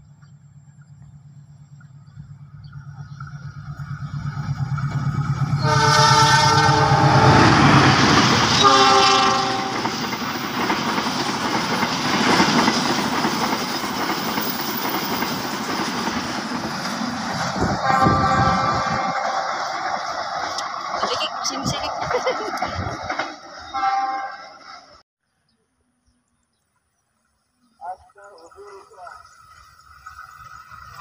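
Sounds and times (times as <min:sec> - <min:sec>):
locomotive engine running: 0:00.0 - 0:25.0
clattering train wheels: 0:01.8 - 0:25.0
train coaches rushing past: 0:02.2 - 0:25.0
train horn blasts: 0:05.4 - 0:10.0, 0:17.6 - 0:19.9, 0:23.6 - 0:24.8.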